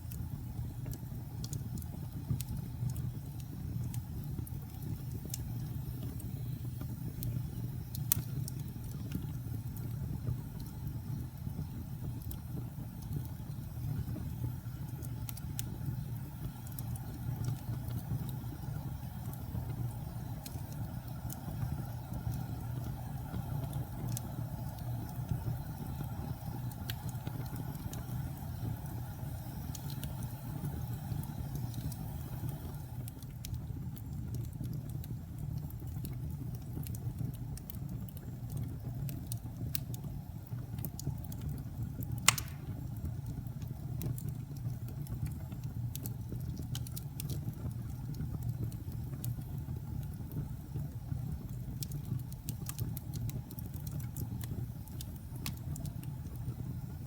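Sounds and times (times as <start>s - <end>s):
wood fire crackling: 0.0s - 57.0s
sharp loud pop of fire: 42.2s - 42.9s.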